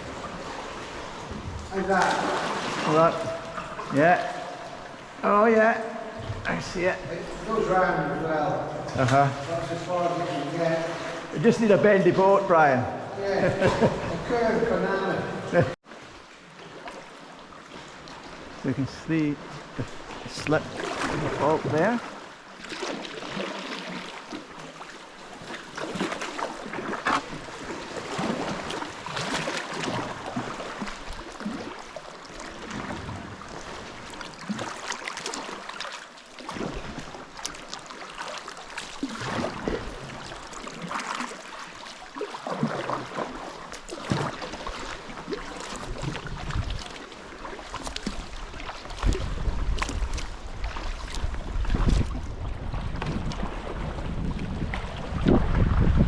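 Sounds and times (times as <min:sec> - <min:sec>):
paddle strokes splashing: 0:00.0 - 0:12.4, 0:13.0 - 0:56.0
water slapping against hull: 0:00.0 - 0:56.0
wind buffeting microphone: 0:46.0 - 0:46.9, 0:48.9 - 0:56.0.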